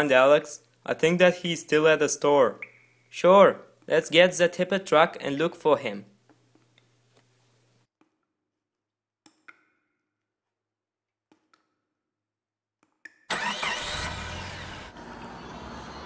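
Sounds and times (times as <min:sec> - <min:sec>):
truck engine starting and running: 0:13.3 - 0:16.0.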